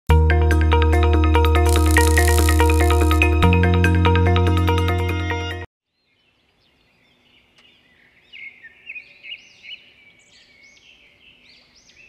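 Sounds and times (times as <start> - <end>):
faint outdoor background: 5.8 - 12.0
birds chirping: 5.9 - 12.0.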